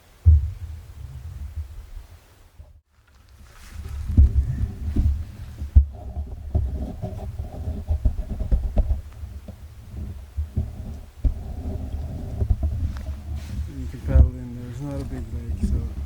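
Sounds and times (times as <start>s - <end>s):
low rumbling: 0.0s - 16.0s
paddle knocking on hull: 4.1s - 16.0s.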